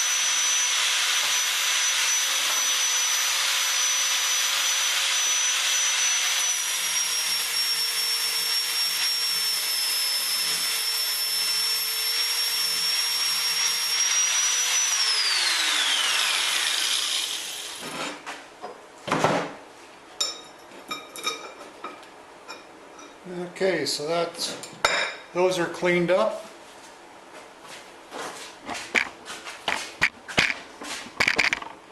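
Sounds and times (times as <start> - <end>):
angle grinder grinding: 0.0 - 18.2
grinder whine spinning down: 12.6 - 17.7.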